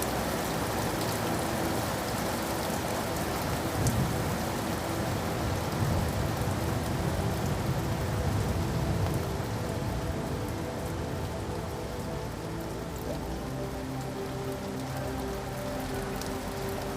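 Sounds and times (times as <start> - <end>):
rain falling on a surface: 0.0 - 16.9.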